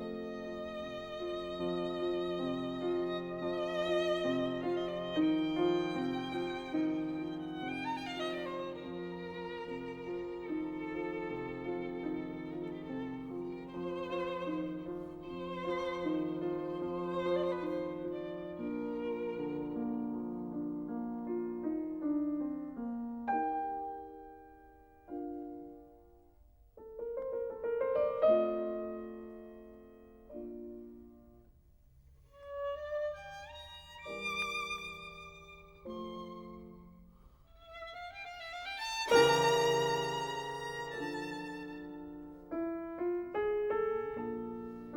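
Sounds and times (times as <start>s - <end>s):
violin playing slow melody: 0.0s - 20.5s, 32.4s - 42.5s
piano notes: 0.0s - 31.6s, 32.4s - 44.9s.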